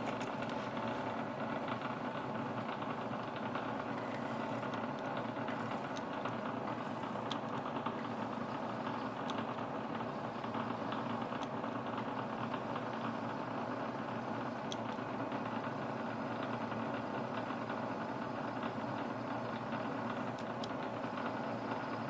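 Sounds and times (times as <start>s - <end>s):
machine tool running: 3.8s - 14.6s.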